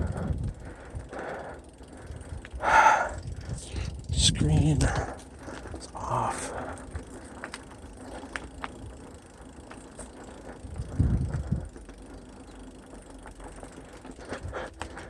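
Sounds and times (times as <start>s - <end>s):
bike clicks and rattles: 0.0s - 15.0s
low rumble: 10.6s - 11.8s.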